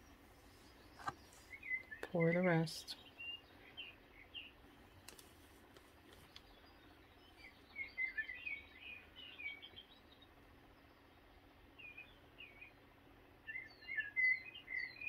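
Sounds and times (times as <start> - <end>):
small bird chirping: 0.0 - 12.8, 13.4 - 15.0
faint clicks: 5.0 - 6.5.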